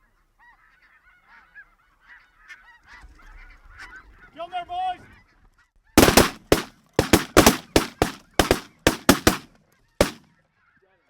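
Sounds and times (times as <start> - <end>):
shotgun shots: 6.0 - 10.2.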